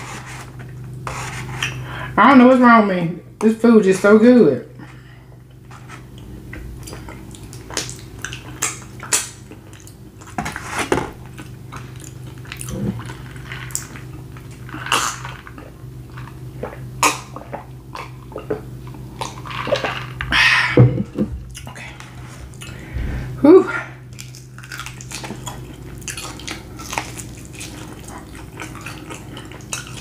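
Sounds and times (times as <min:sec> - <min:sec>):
low steady hum: 0:00.0 - 0:30.0
chewing and mouth smacks: 0:06.1 - 0:10.4, 0:11.2 - 0:20.2, 0:24.1 - 0:30.0.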